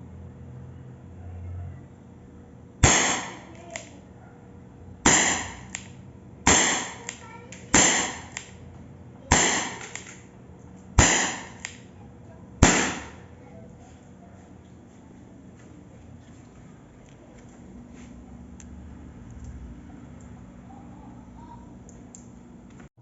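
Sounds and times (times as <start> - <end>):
air pistol shots cracking: 2.8 - 4.0, 5.0 - 8.6, 9.3 - 10.3, 11.0 - 11.9, 12.6 - 13.3.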